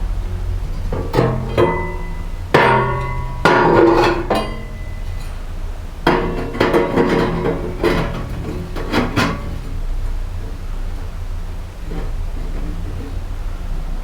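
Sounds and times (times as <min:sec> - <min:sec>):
sheet metal pipe clanking: 0:00.6 - 0:09.8.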